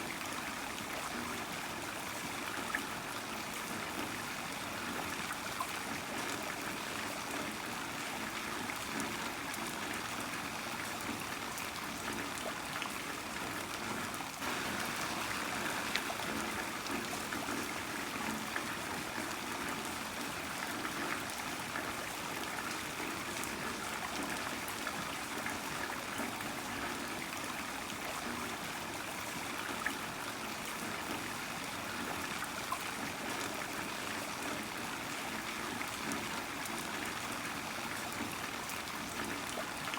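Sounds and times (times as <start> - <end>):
heavy rain falling: 14.4 - 17.8.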